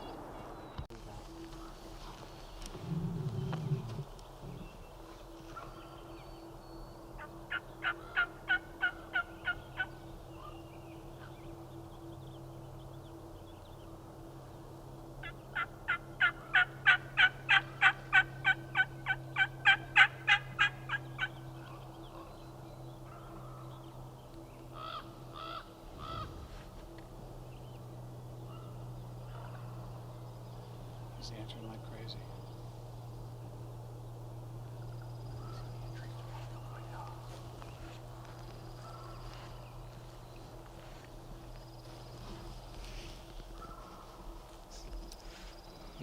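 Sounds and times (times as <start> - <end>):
turkey yelping: 7.2 - 10.5, 15.2 - 21.8, 24.8 - 26.4, 43.6 - 44.1.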